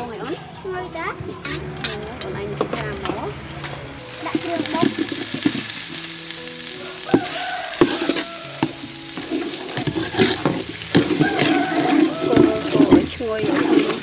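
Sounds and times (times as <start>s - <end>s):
metal ladle scraping a pot: 0.0s - 2.7s, 4.0s - 5.9s, 7.2s - 14.0s
spices sizzling in hot oil: 4.0s - 14.0s.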